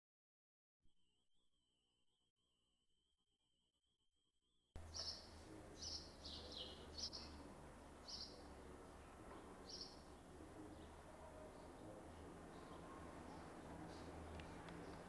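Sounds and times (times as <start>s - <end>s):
bird chirping: 4.8s - 15.0s.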